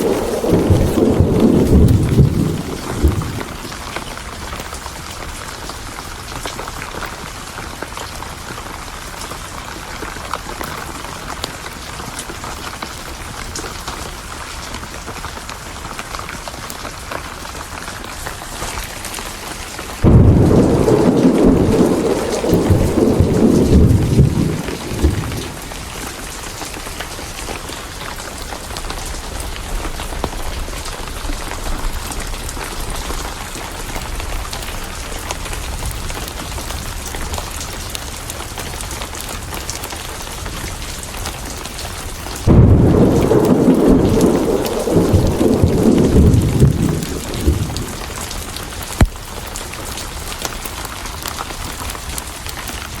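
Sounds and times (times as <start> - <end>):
thunder rumbling: 0.0 - 4.2, 18.6 - 37.4, 42.4 - 49.2
heavy rain: 0.0 - 53.0.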